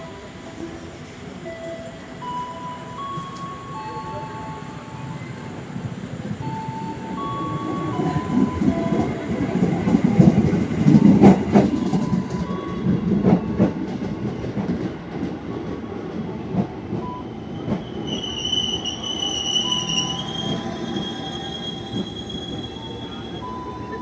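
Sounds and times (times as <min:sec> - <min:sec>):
train rumbling on rails: 0:00.0 - 0:24.0
high steady brake squeal: 0:17.1 - 0:24.0.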